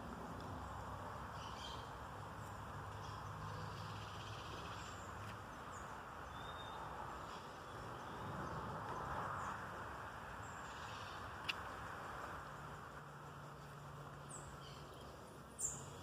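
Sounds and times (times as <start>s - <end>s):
background hiss: 0.0s - 16.0s
faint bird chirps: 2.9s - 8.6s, 14.2s - 16.0s.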